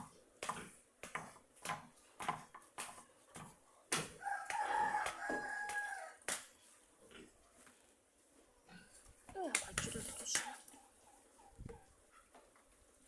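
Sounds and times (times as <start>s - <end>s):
rooster crowing: 4.2s - 6.2s.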